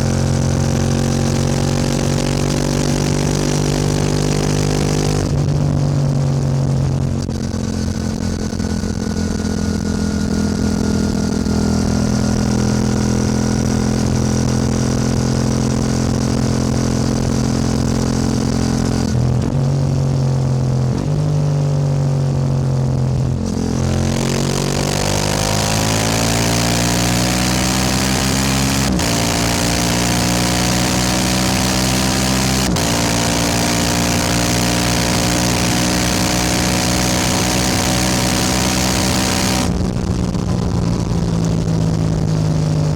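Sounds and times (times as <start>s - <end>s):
motorcycle engine revving: 0.0s - 42.9s
wind noise: 27.6s - 42.9s.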